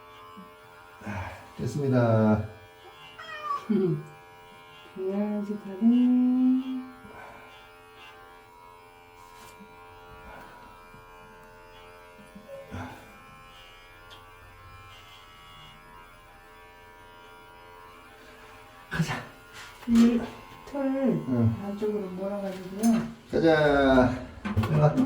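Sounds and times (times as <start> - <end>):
electric hair clipper buzzing: 0.0 - 25.0.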